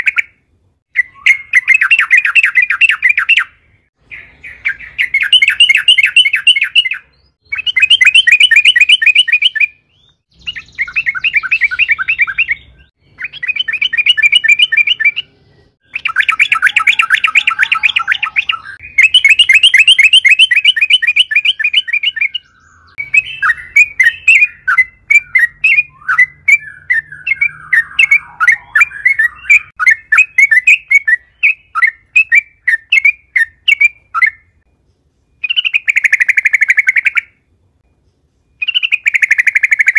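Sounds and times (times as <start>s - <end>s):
bulbul chattering trills: 10.3s - 34.3s.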